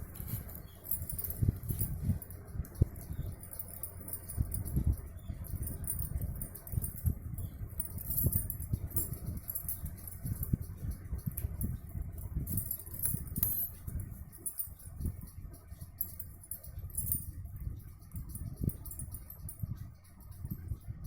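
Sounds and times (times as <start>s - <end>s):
hands handling craft pieces: 0.0s - 2.2s.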